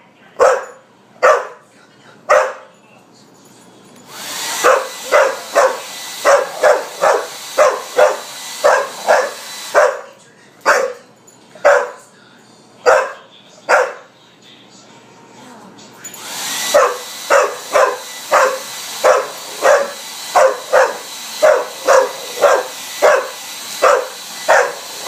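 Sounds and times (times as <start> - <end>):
dog barking: 0.4 - 1.7, 2.3 - 2.8, 4.6 - 12.1, 12.8 - 14.2, 16.7 - 25.0
blow dryer rushing: 4.0 - 10.1, 16.0 - 25.0.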